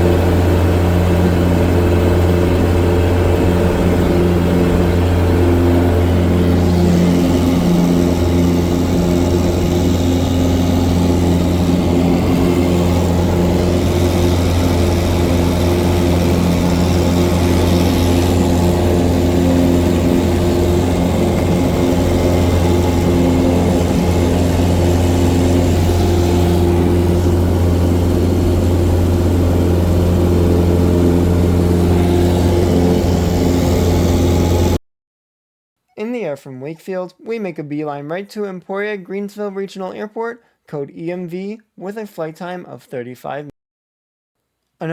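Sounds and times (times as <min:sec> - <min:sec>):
propeller plane engine droning: 0:00.0 - 0:34.8.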